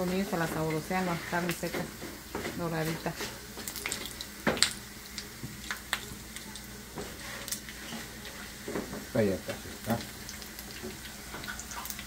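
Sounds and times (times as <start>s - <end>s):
spatula scraping and clicking on pan: 0.0s - 4.7s
beef sizzling in oil: 0.0s - 12.0s.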